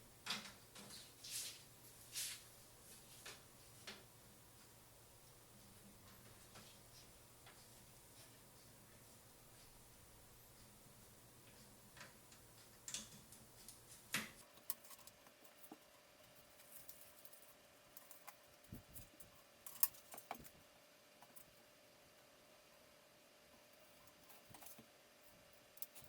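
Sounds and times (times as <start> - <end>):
faint steady hum: 0.0 - 26.0
hands handling computer hardware: 14.2 - 20.6.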